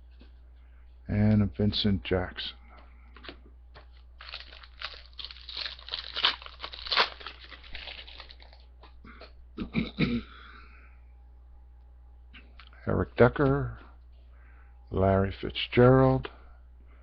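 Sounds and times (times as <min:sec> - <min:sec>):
wrapper rustling: 0:03.9 - 0:08.7
foil wrapper crinkling and tearing: 0:04.2 - 0:08.7.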